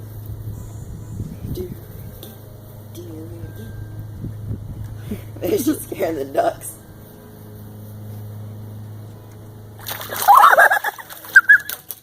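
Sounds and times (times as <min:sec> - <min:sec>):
low steady hum: 0:00.0 - 0:12.0
splashing and flapping: 0:09.8 - 0:12.0.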